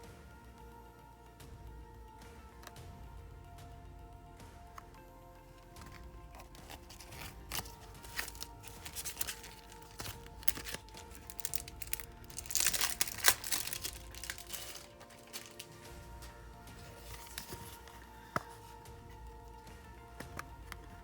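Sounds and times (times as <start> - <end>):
quiet background music: 0.0 - 21.0
packaging crinkling: 5.8 - 18.8.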